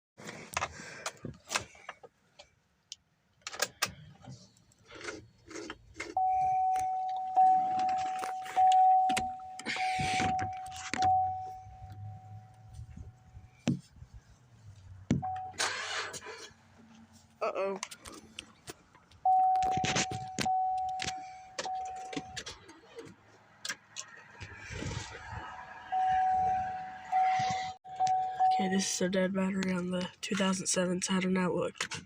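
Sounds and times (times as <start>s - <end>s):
car warning chime: 6.1s - 13.5s, 15.2s - 15.6s, 19.2s - 22.4s, 25.9s - 29.8s.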